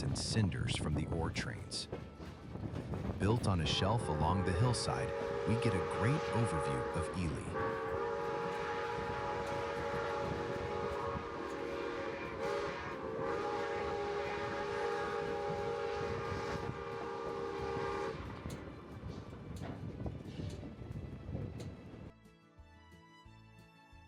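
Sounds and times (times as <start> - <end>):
train rumbling on rails: 0.0 - 22.2
steam locomotive chime whistle: 3.4 - 19.3.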